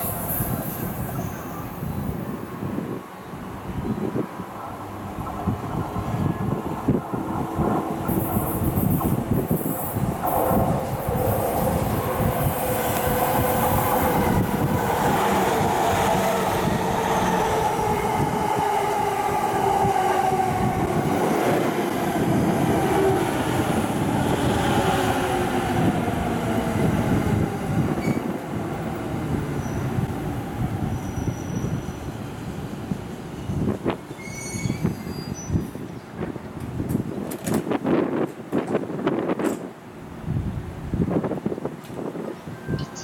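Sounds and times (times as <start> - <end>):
wheel and rail noise: 4.2 - 32.2
wheel squeal: 30.9 - 31.8, 34.1 - 35.6.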